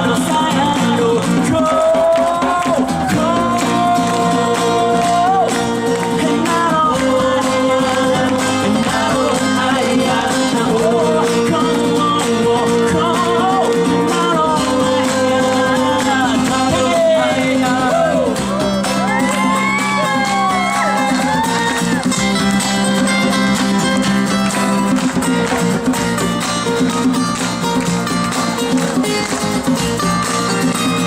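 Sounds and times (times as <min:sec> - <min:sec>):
person singing: 0:00.0 - 0:22.1
live band playing: 0:00.0 - 0:31.0.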